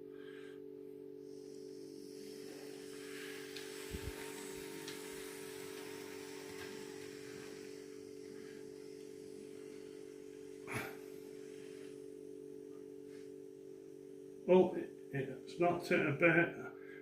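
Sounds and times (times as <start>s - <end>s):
model train motor humming: 1.2s - 14.5s.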